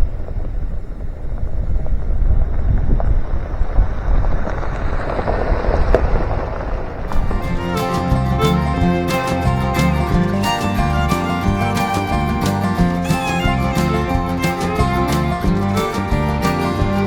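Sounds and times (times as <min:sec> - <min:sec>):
wind buffeting microphone: 0:00.0 - 0:17.0
music: 0:07.1 - 0:17.0.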